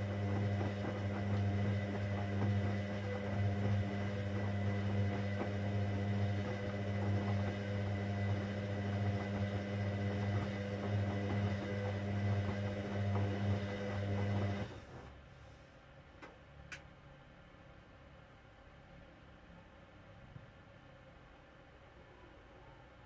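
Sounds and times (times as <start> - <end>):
washing machine hum: 0.0 - 15.4.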